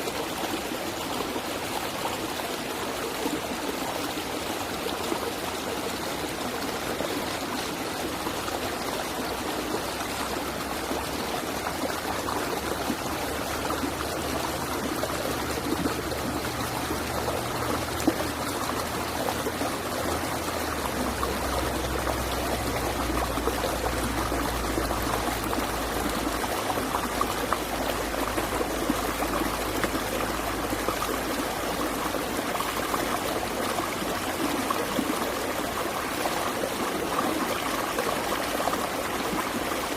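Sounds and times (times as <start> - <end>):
stream water rushing and splashing: 0.0 - 39.9.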